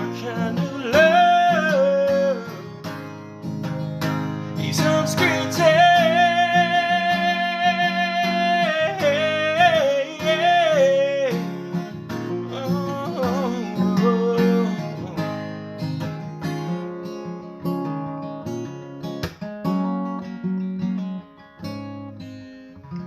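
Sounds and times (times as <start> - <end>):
man singing: 0.0 - 3.0, 4.5 - 15.5
strummed acoustic guitar: 0.0 - 23.0.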